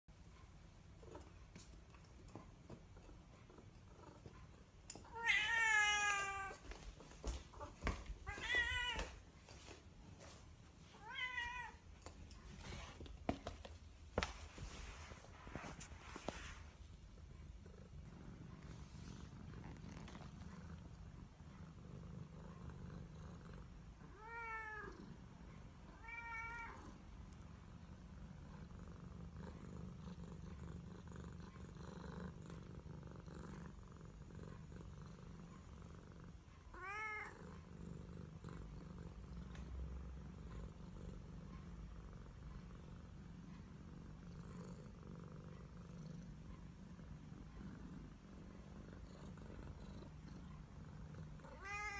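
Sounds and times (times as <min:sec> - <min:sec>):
cat purring: 0:00.2 - 0:05.4, 0:13.8 - 0:51.9
cat meowing: 0:05.1 - 0:06.6, 0:08.3 - 0:09.2, 0:11.0 - 0:11.8, 0:24.1 - 0:24.9, 0:25.9 - 0:26.8, 0:36.8 - 0:37.3, 0:51.5 - 0:51.9.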